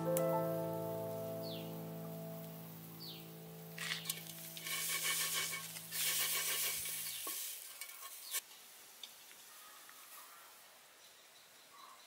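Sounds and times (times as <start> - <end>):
soft background music: 0.0 - 5.3
meat sizzling in a wok: 4.2 - 8.4.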